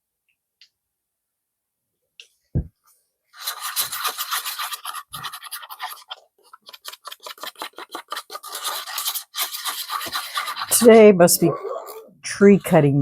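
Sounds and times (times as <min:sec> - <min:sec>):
stir stick scraping a cup: 0:03.4 - 0:13.0.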